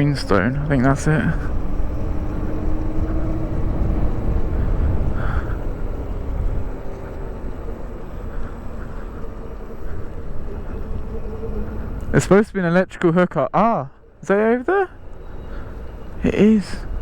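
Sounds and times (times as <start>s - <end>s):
electric motor whine: 0.0s - 12.2s
wind rumble on microphone: 0.0s - 12.5s
road noise: 0.0s - 17.0s.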